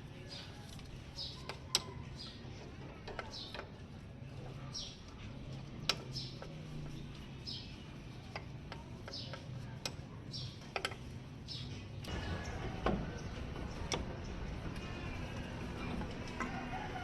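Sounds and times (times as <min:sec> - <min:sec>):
hand tools clicking and tapping: 0:08.2 - 0:11.1.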